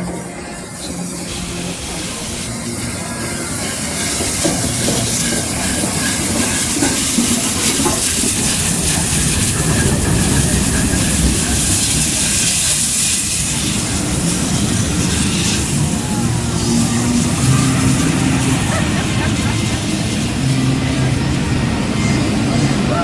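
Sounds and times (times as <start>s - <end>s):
loud hiss of steam: 0.0s - 23.0s
wheels rumbling on rails: 0.0s - 23.0s.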